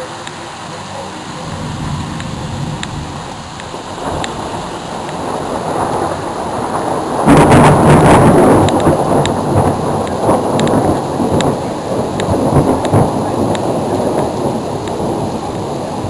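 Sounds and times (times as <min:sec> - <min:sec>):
thunder rumbling: 0:00.0 - 0:16.0
thunder crash: 0:01.4 - 0:16.0.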